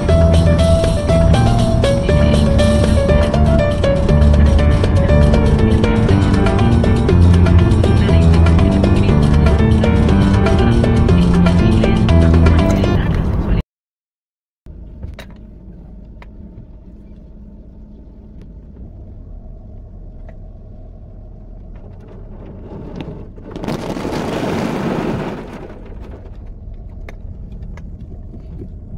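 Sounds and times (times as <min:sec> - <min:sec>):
car engine rumble: 0:00.0 - 0:13.6, 0:14.7 - 0:28.9
rush of noise: 0:00.0 - 0:13.6.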